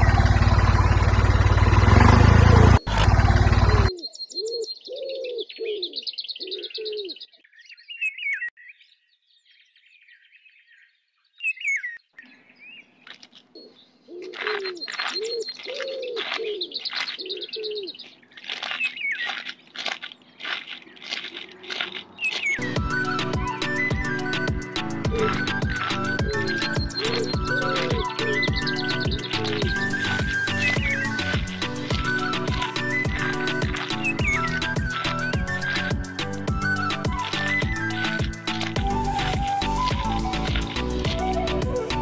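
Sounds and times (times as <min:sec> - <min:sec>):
loud rough noise: 0:00.0 - 0:03.9
small birds chirping and trilling: 0:03.6 - 0:23.1, 0:23.8 - 0:42.0
dove cooing: 0:03.7 - 0:07.2, 0:13.6 - 0:18.0, 0:25.1 - 0:35.2.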